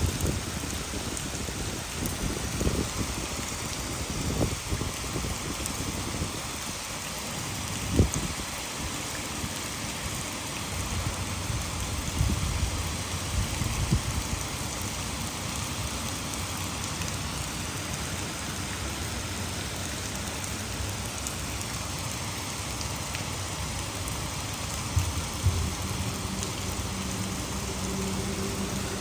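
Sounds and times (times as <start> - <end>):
heavy rain falling: 0.0 - 29.0
water rushing over a dam: 0.0 - 29.0
low thumps: 24.9 - 27.6.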